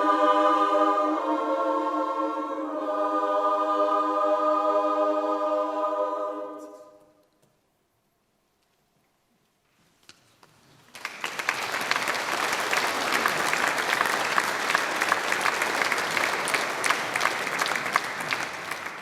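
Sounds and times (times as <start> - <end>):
audience applauding: 10.9 - 19.0.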